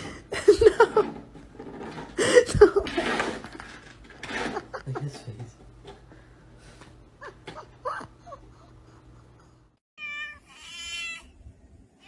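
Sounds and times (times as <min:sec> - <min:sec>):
person laughing: 0:00.0 - 0:01.2, 0:02.2 - 0:03.0, 0:04.3 - 0:05.4, 0:07.2 - 0:09.6.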